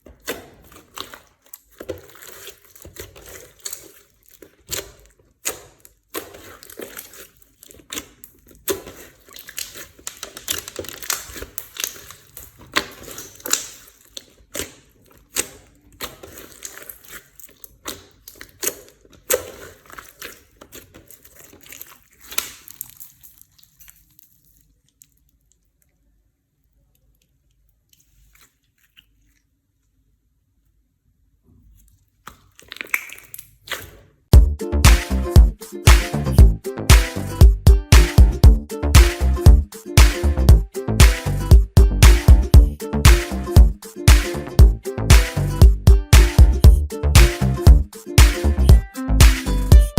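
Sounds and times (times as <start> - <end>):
slime squeezed by hand popping: 32.3 - 34.0, 34.8 - 44.4.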